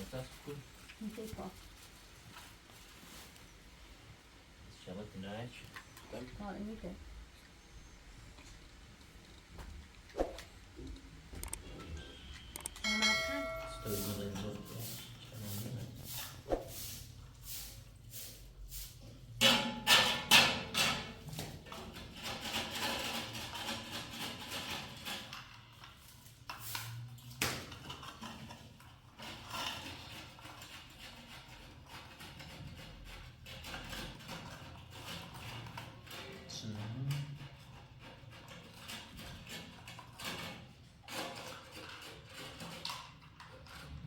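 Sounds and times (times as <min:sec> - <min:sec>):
hard objects knocking and clattering: 0:19.4 - 0:25.7.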